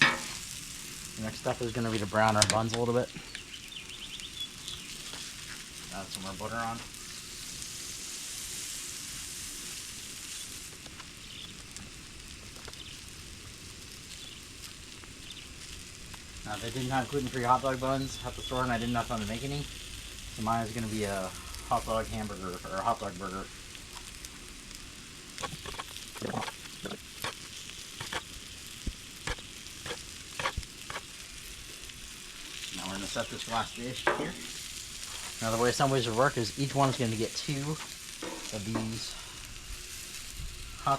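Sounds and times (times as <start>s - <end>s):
small pops and crackles: 0.0s - 7.8s, 9.0s - 36.0s
food sizzling on a griddle: 0.0s - 40.9s
utensil clicking and scraping: 25.4s - 28.3s, 29.2s - 31.1s.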